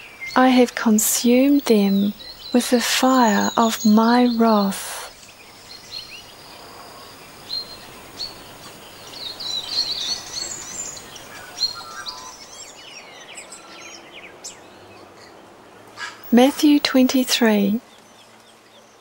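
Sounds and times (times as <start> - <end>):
birds chirping: 0.0 - 19.0
faint steady hiss: 0.0 - 19.0.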